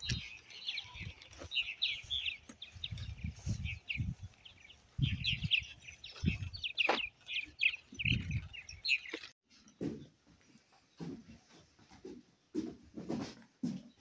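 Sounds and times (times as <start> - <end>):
small songbirds chirping: 0.0 - 9.4.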